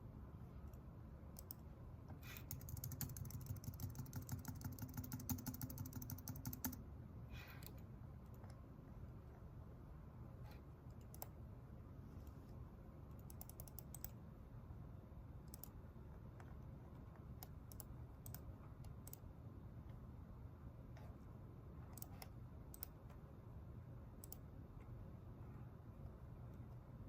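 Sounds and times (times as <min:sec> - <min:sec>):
low room hum: 0:00.0 - 0:27.0
typing on computer keyboard: 0:02.2 - 0:06.8, 0:13.1 - 0:14.2, 0:15.4 - 0:15.8.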